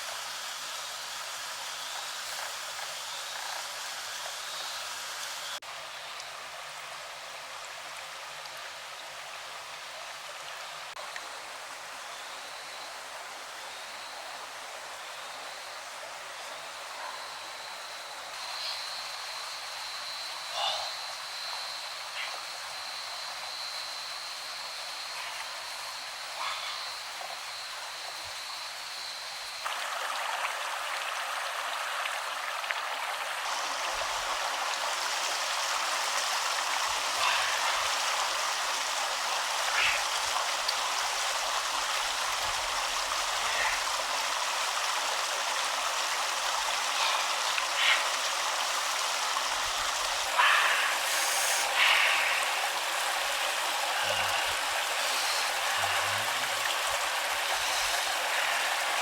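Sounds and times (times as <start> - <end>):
stream water rushing: 12.8 - 59.0
water splashes: 29.6 - 59.0.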